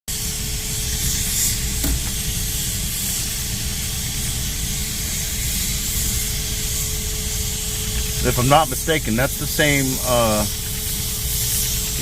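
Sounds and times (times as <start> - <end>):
low engine rumble: 0.1 - 12.0
steam hissing: 0.1 - 12.0.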